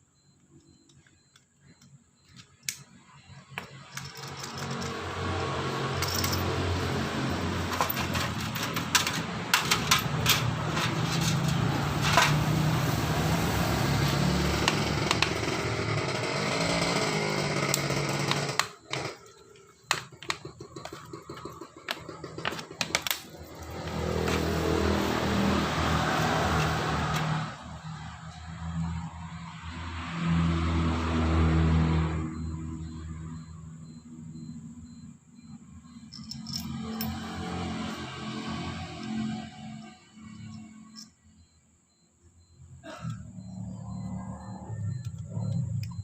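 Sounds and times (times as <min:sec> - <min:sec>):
clicks and knocks: 0:17.6 - 0:23.6.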